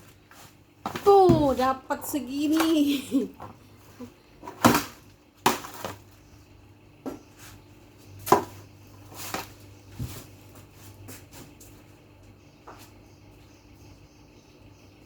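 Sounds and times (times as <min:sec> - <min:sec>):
household items knocking: 0:00.9 - 0:01.6.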